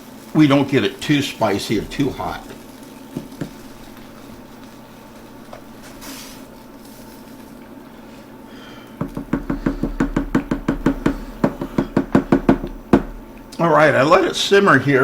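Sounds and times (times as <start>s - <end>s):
faint steady background noise: 0.0s - 15.0s
rapid sharp knocks: 9.0s - 13.4s.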